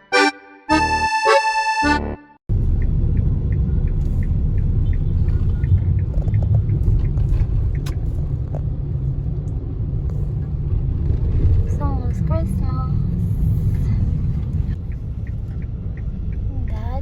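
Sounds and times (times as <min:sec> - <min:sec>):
road rumble inside moving car: 0:02.5 - 0:17.0
light ticks: 0:13.7 - 0:17.0.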